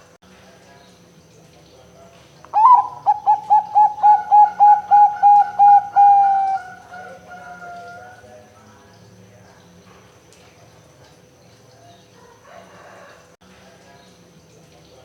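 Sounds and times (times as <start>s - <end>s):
dove cooing: 2.6s - 8.3s.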